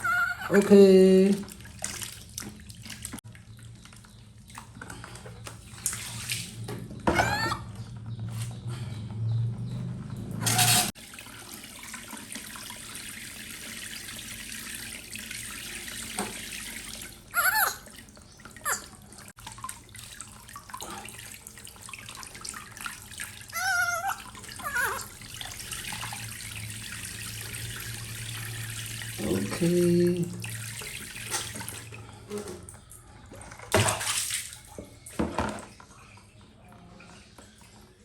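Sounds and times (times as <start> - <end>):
tap water running into sink: 10.5 - 17.3
short high-pitched cries: 17.4 - 17.8, 23.6 - 25.1.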